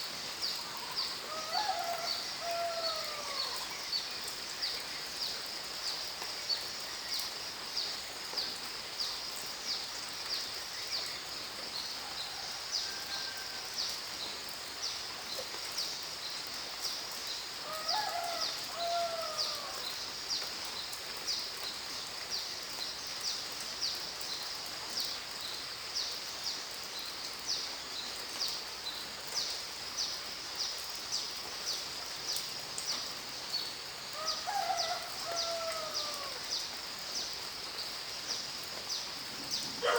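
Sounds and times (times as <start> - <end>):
insects chirping: 30.2 - 39.9.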